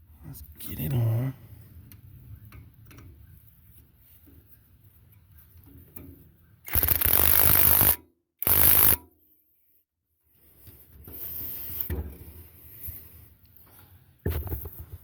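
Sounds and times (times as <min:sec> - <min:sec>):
impact wrench bursts: 0:06.7 - 0:09.0.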